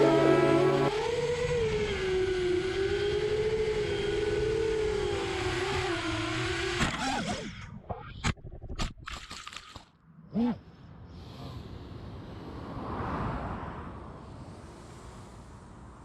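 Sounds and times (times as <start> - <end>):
background music: 0.0 - 0.9
drone motors whining: 0.0 - 7.6.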